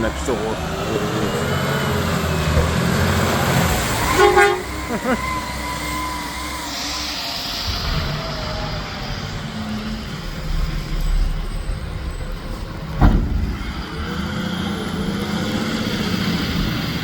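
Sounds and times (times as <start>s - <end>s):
garbage truck diesel engine: 0.0s - 17.0s
sharp thump: 2.5s - 3.0s, 13.0s - 13.8s.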